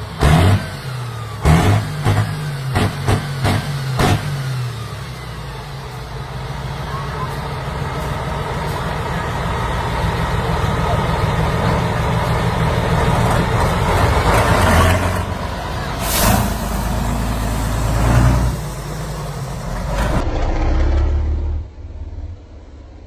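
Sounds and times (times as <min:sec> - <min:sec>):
tractor engine rumbling: 0:00.0 - 0:23.0
brief hiss: 0:16.0 - 0:16.8.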